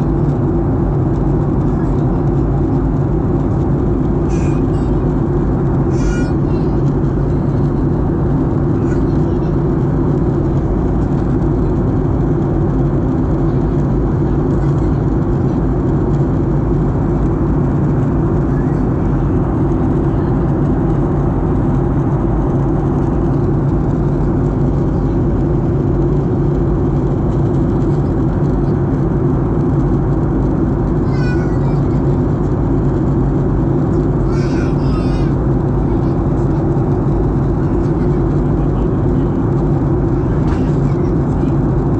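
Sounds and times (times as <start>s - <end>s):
rushing airflow: 0.0s - 31.1s
aircraft engines droning: 0.0s - 41.9s.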